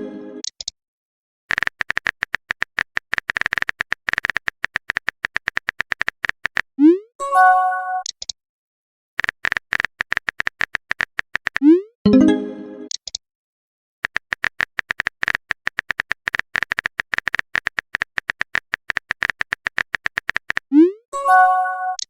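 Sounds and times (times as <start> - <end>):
synthetic keystroke clicks: 0.4 - 0.7, 8.0 - 8.4, 9.2 - 13.2.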